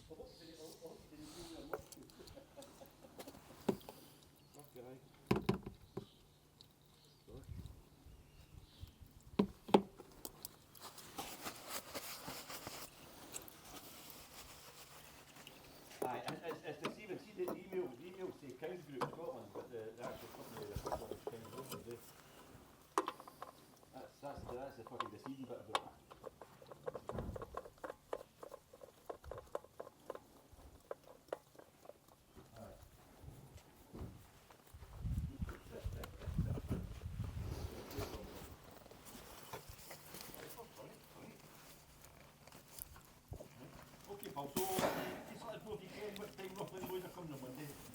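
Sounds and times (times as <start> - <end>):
rustling and scraping: 9.6 - 47.9.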